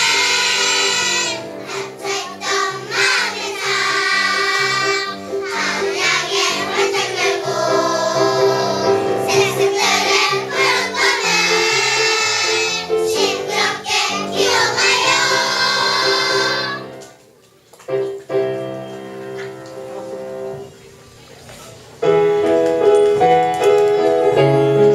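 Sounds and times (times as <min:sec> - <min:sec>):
children's choir singing: 0:00.0 - 0:17.1
piano notes: 0:00.0 - 0:17.2, 0:17.8 - 0:20.9, 0:22.0 - 0:24.9.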